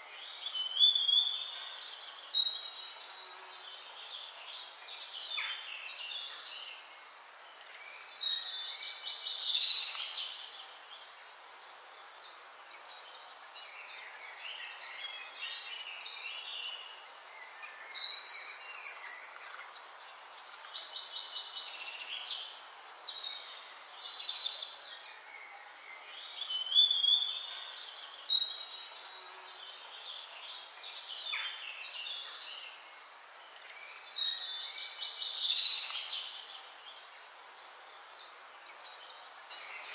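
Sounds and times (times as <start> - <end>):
faint steady hiss: 0.0 - 39.9
songbirds singing: 0.0 - 39.9.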